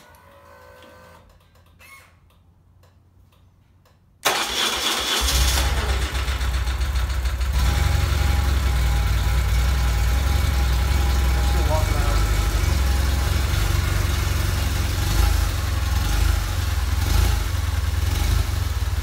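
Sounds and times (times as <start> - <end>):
car engine starting and running: 4.2 - 19.0.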